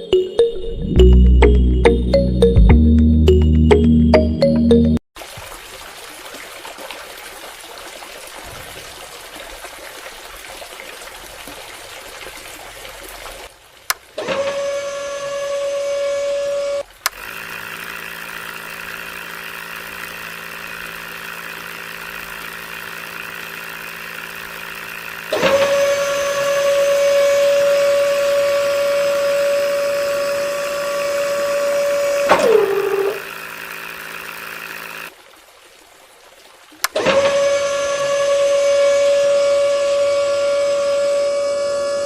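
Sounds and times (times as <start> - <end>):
small motor whining: 14.2 - 35.1, 36.8 - 42.0.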